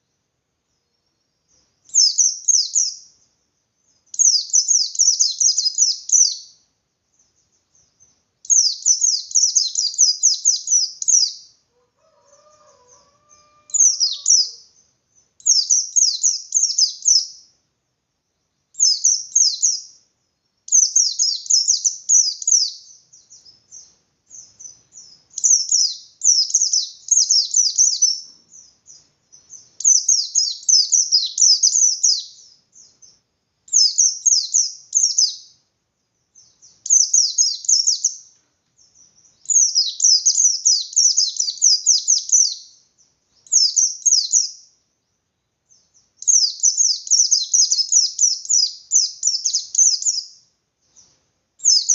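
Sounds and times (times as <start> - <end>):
white-eye trilling song: 11.8 - 14.7.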